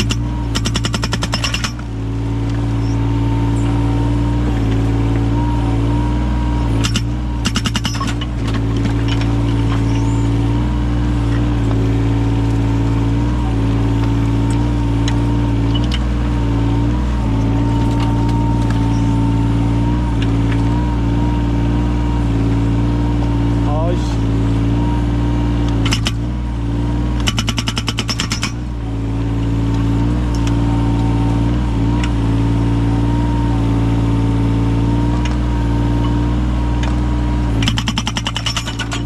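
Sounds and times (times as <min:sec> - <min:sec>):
hydraulic breaker hammering wood: 0:00.0 - 0:01.9, 0:06.7 - 0:10.0, 0:25.7 - 0:26.3, 0:27.2 - 0:28.7, 0:36.8 - 0:39.0
excavator diesel engine running: 0:00.0 - 0:39.0.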